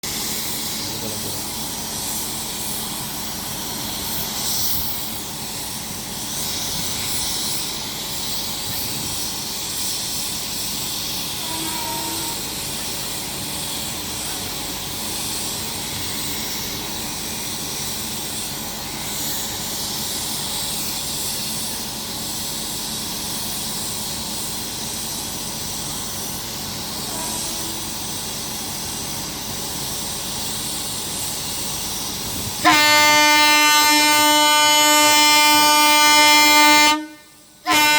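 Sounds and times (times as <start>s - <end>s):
train hiss and hum: 0.0s - 37.9s
faint short tone: 11.4s - 12.5s.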